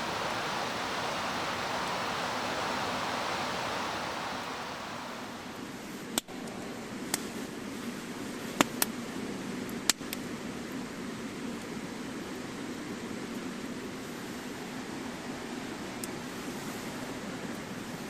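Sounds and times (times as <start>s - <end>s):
campfire burning: 0.0s - 5.6s
rushing stream water: 0.0s - 5.6s.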